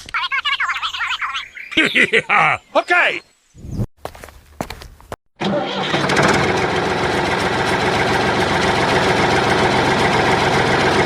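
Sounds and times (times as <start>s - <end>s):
engine chugging: 5.4s - 11.0s.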